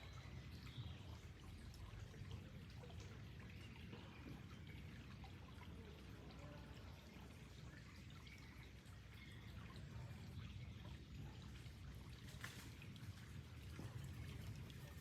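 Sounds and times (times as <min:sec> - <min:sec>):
water trickling and dripping: 0:00.0 - 0:15.0.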